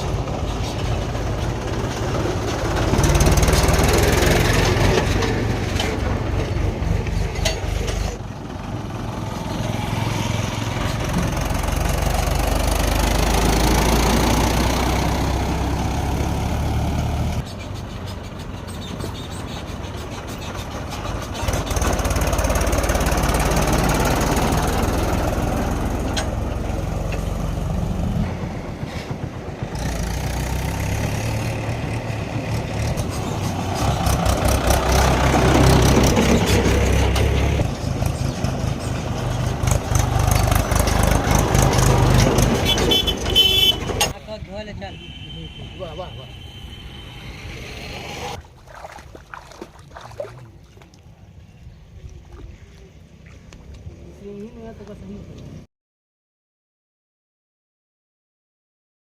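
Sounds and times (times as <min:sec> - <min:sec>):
heavy diesel engine running: 0:00.0 - 0:17.4, 0:20.0 - 0:44.1.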